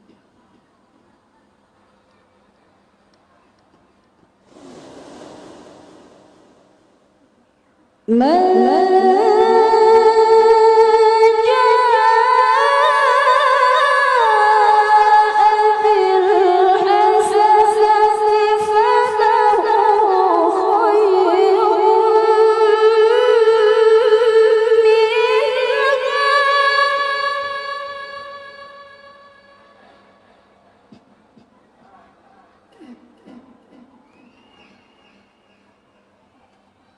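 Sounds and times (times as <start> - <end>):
woman reciting melodically: 8.1 - 30.1.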